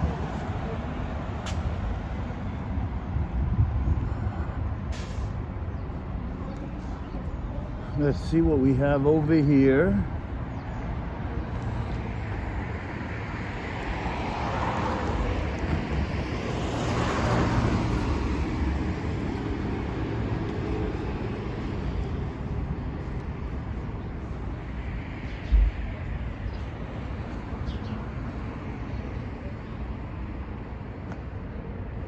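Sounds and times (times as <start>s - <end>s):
cars driving by: 0.0s - 32.0s.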